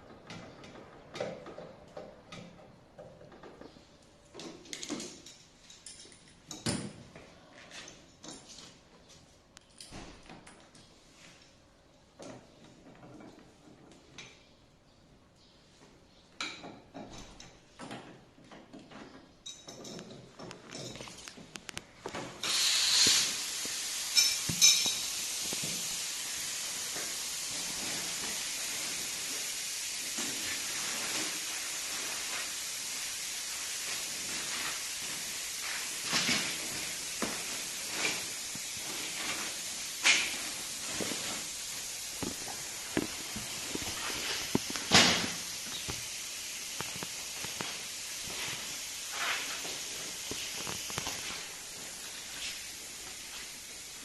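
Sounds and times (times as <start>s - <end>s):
pressurised gas hissing: 22.3s - 54.0s.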